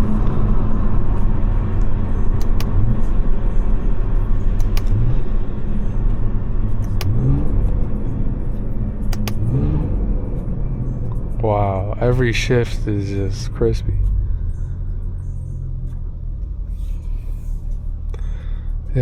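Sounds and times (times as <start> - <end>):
car engine accelerating: 0.0 - 19.0
sharp crack at upshift: 2.3 - 3.1, 4.6 - 5.0, 6.7 - 7.3, 9.0 - 9.5.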